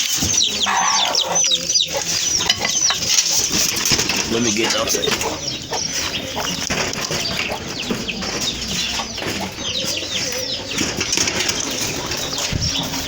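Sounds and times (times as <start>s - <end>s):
birds chirping: 0.0s - 13.0s
poultry clucking: 0.0s - 13.0s.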